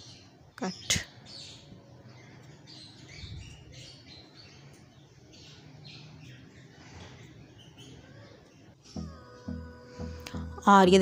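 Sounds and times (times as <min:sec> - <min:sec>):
birds chirping: 0:00.0 - 0:11.0
low steady hum: 0:08.0 - 0:11.0.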